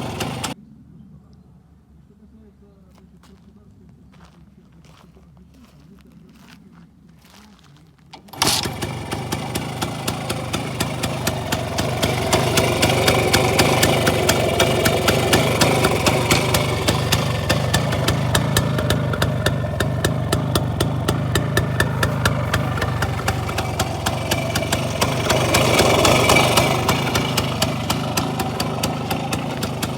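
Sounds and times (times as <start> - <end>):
two-stroke motorcycle engine: 0.0 - 0.6, 8.2 - 29.9.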